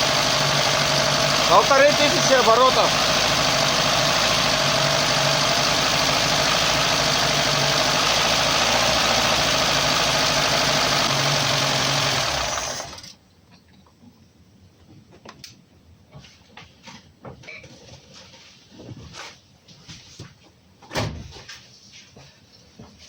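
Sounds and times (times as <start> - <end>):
car engine running: 0.0 - 13.1.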